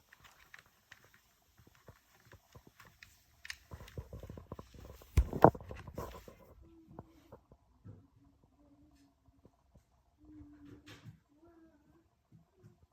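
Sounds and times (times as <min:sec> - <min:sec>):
clicks and knocks of handling: 0:00.0 - 0:06.5
thumps: 0:01.8 - 0:06.4.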